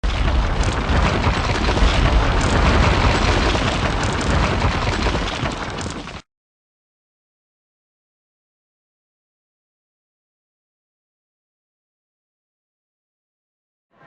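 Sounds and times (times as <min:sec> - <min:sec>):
explosion with deep rumble: 0:00.0 - 0:06.2.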